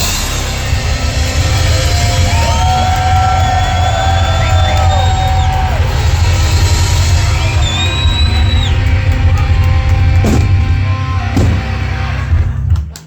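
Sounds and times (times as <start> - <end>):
heavy metal band playing live: 0.0 - 8.0.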